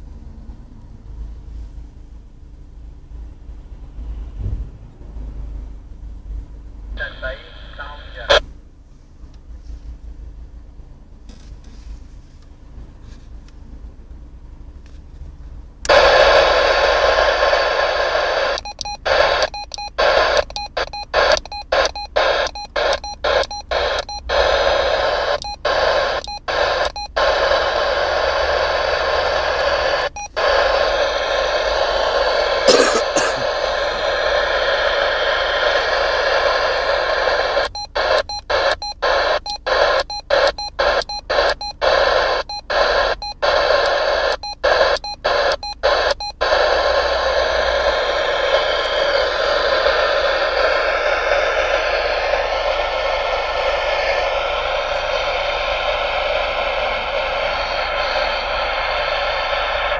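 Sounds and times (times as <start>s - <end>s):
radio static hiss: 7.0s - 8.5s, 15.8s - 59.9s
faint beeps: 17.2s - 59.9s.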